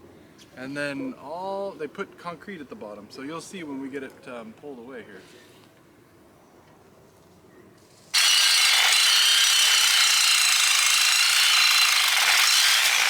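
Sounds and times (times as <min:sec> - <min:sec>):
reciprocating saw cutting metal: 0:08.2 - 0:13.0.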